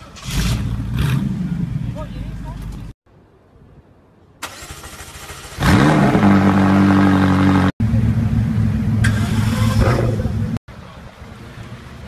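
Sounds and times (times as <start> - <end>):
engine starter cranking: 4.4 - 5.6.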